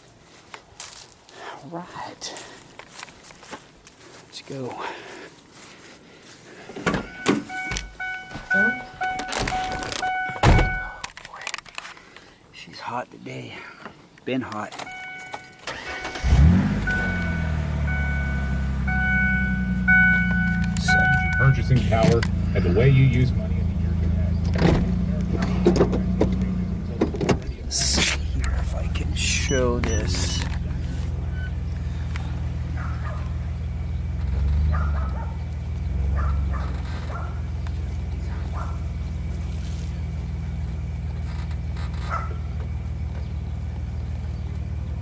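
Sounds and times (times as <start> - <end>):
high electronic warning tone: 7.0 - 11.0, 14.8 - 22.9
truck engine starting and idling: 15.0 - 45.0.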